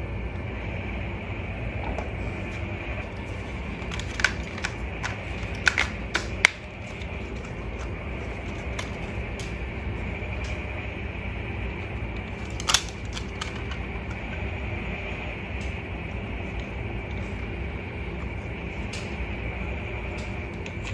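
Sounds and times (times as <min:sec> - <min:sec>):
toy truck motor humming: 0:02.2 - 0:09.5.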